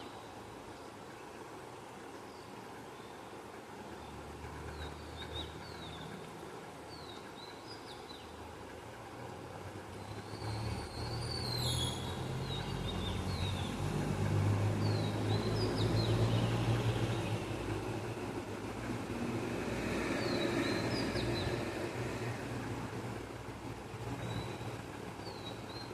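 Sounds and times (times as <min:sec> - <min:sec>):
small birds chirping: 0:10.0 - 0:14.0, 0:24.2 - 0:25.9.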